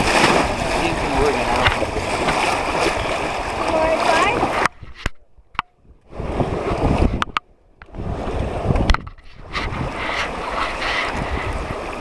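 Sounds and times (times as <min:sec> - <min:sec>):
paddles splashing in river water: 0:00.0 - 0:04.8, 0:09.4 - 0:12.0.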